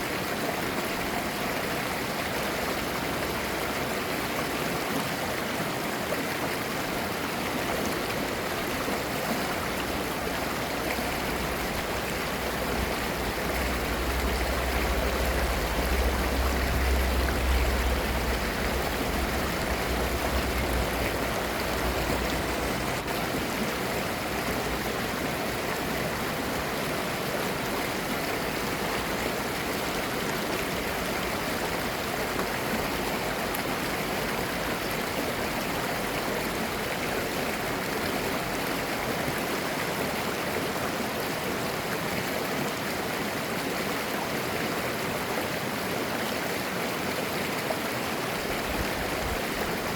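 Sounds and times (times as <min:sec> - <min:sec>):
stream babbling: 0:00.0 - 0:49.9
deep low rumble: 0:13.2 - 0:22.8.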